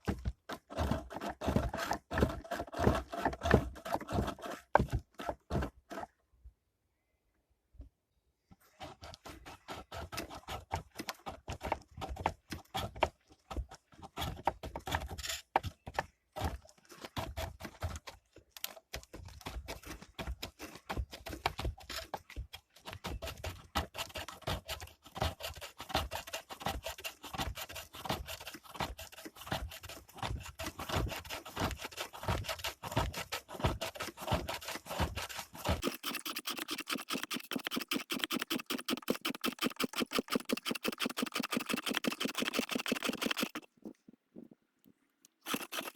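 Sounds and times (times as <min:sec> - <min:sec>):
lathe tool scraping wood: 0:35.8 - 0:43.7, 0:45.4 - 0:45.9.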